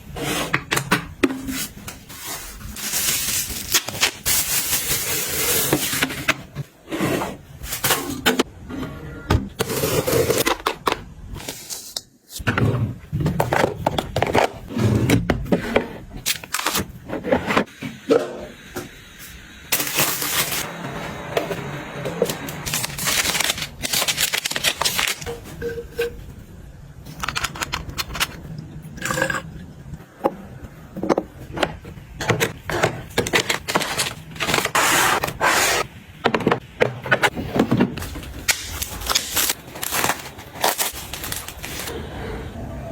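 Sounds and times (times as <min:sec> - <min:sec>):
rustling and scraping: 0:37.2 - 0:42.0.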